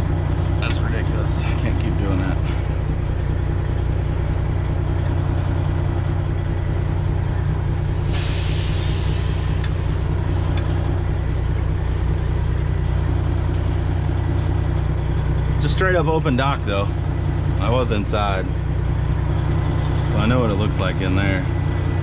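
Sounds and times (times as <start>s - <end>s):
truck diesel engine idling: 0.0s - 22.0s
air hiss: 7.9s - 9.9s.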